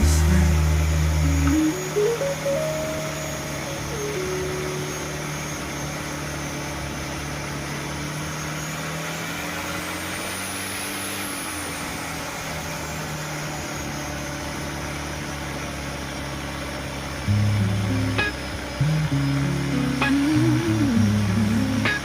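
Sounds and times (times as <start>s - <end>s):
boat engine humming: 0.0s - 8.3s, 13.7s - 22.0s
faint high whine: 0.0s - 9.1s, 17.2s - 22.0s.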